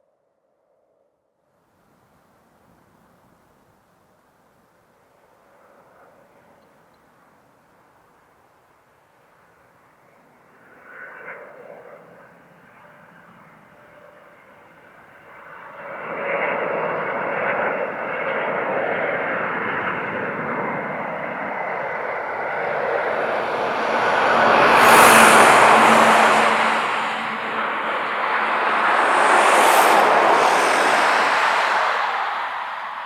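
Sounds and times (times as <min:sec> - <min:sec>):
airliner jet engines approaching: 0:18.4 - 0:33.0.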